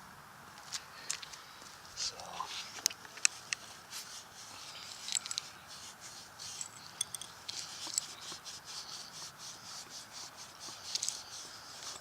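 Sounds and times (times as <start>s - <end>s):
scraping and rubbing on metal: 2.5s - 12.0s.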